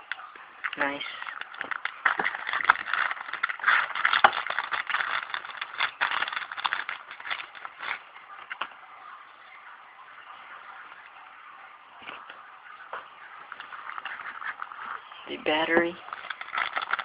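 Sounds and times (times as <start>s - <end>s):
packaging rustling and crinkling: 0.0s - 8.7s, 13.2s - 17.0s
small clicks and scrapes: 0.0s - 8.7s, 13.5s - 15.2s, 15.8s - 17.0s.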